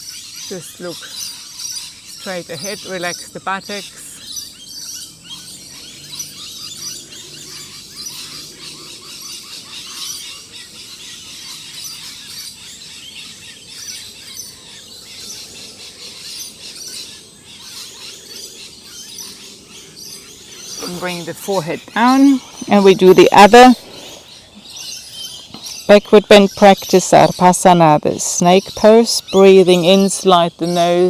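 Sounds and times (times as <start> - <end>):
birds chirping in chorus: 0.0 - 31.0.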